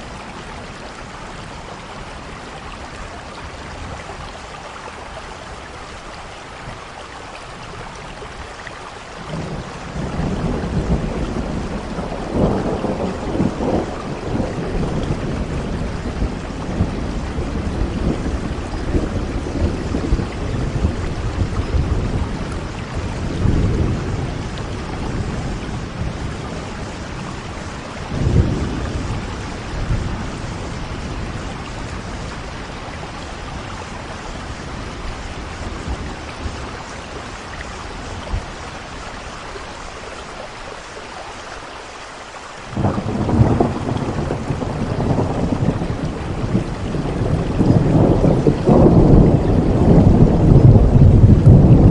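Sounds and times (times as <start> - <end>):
heavy rain falling: 0.0 - 51.9
rolling thunder: 9.2 - 38.9, 42.7 - 51.9.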